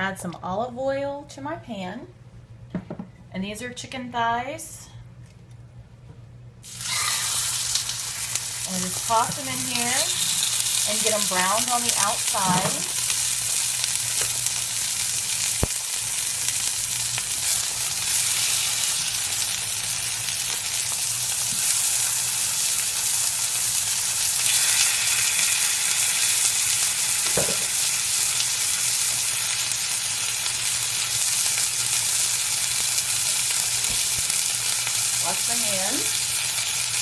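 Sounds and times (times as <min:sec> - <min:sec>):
chicken sizzling in oil: 0:06.6 - 0:37.0.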